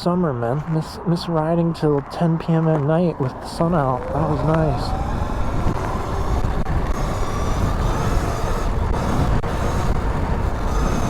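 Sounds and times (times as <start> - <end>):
wind rushing over microphone: 0.0 - 11.0
electric motor whine: 4.0 - 11.0.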